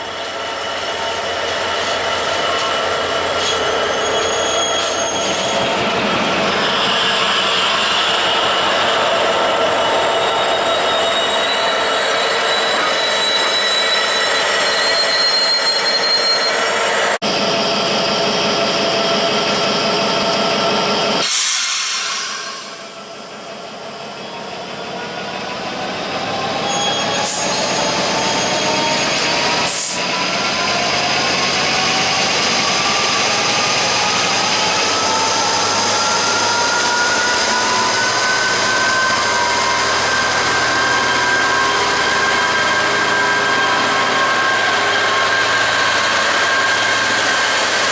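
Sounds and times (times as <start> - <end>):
train motor whine: 30.3 - 47.9.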